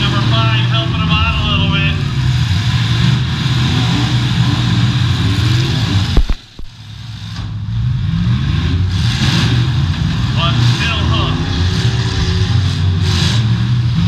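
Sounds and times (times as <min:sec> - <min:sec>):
car engines revving hard: 0:00.0 - 0:14.0.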